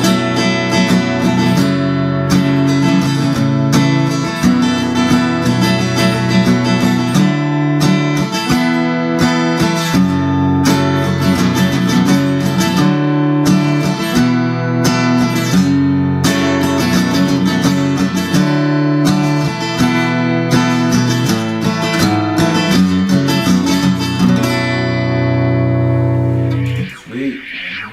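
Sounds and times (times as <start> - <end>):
amplified acoustic guitar strumming: 0.0 - 27.7.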